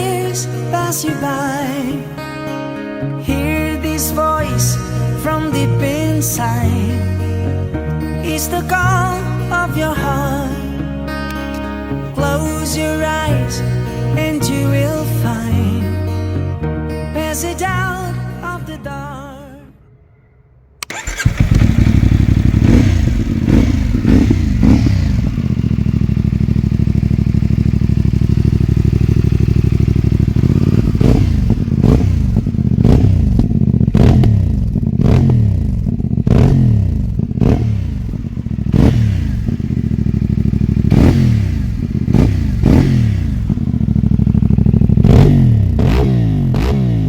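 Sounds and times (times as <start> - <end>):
motorcycle engine revving and idling: 20.8 - 47.0.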